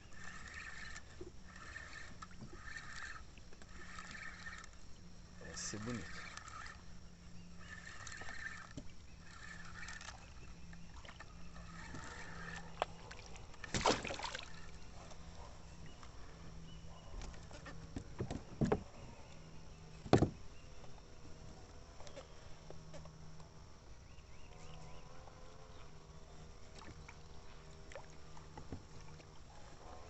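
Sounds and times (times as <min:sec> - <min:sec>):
water splashing: 0:07.6 - 0:14.8
knocks against kayak hull: 0:20.0 - 0:20.4.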